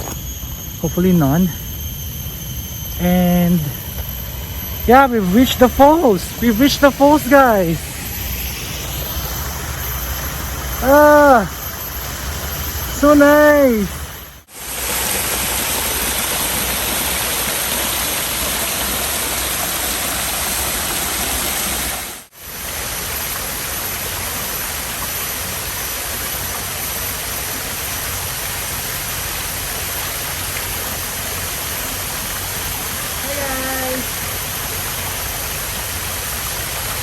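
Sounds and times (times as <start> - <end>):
small waterfall rushing: 14.5 - 37.0.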